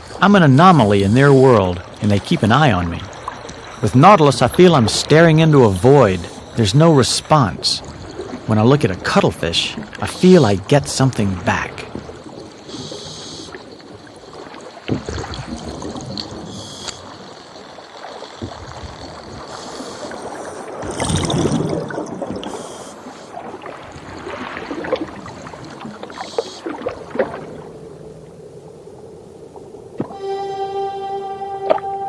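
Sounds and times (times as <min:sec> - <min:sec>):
underwater gurgling and bubbling: 0:00.0 - 0:28.5
short hissing bursts: 0:12.6 - 0:13.8, 0:16.4 - 0:17.4, 0:19.4 - 0:20.8
sharp underwater clicks: 0:14.9 - 0:17.4.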